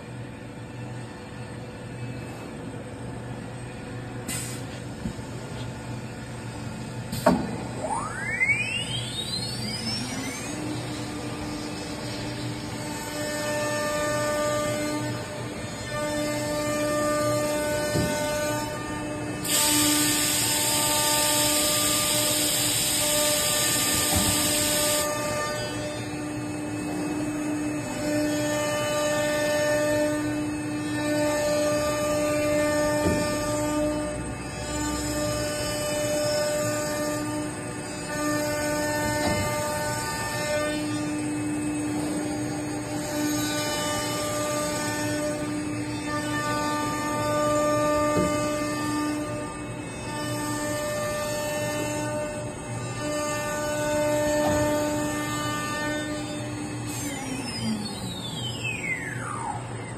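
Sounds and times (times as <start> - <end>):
machine humming: 0.0 - 59.9
rising whine: 5.1 - 14.7, 54.8 - 59.9
router motor whine: 6.1 - 59.9.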